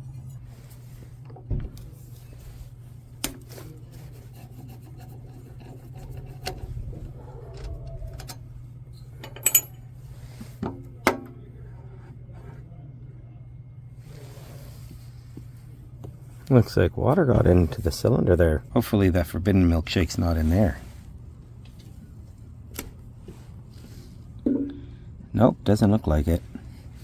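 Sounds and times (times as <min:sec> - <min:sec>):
low hum: 0:05.6 - 0:27.0
hand tools clinking on metal: 0:09.0 - 0:09.8
ringing metal clink: 0:09.2 - 0:09.9.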